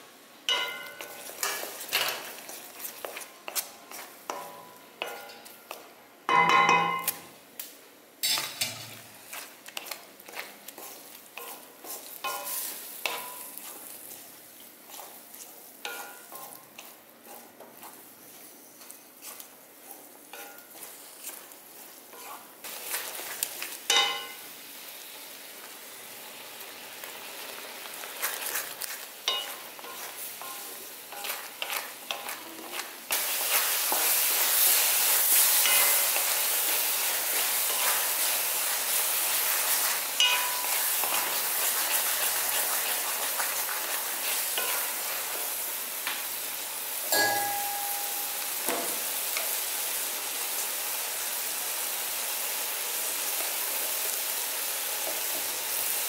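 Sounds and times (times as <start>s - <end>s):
lentils sizzling in a pan: 0.0s - 6.0s, 6.7s - 56.0s
spatula scraping and tapping pan: 0.5s - 7.3s, 8.2s - 24.4s, 28.0s - 46.3s.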